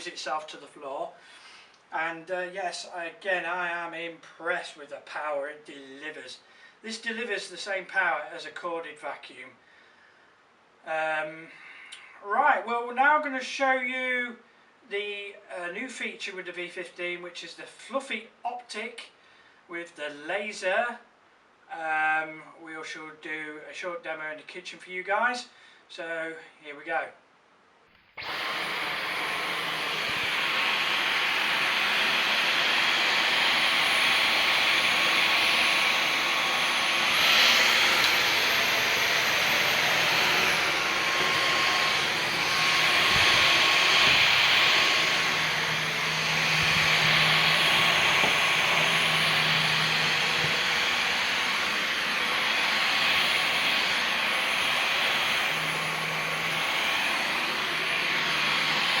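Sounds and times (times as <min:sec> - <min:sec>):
vacuum cleaner running: 0:28.2 - 0:59.0.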